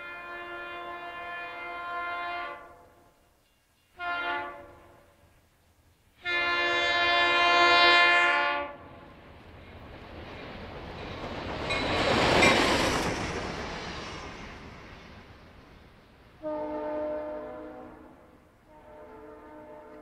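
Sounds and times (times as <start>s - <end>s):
locomotive air horn blasts: 0.0s - 3.1s, 4.0s - 5.3s, 6.2s - 9.0s, 16.4s - 20.0s
train passing at speed: 0.0s - 20.0s.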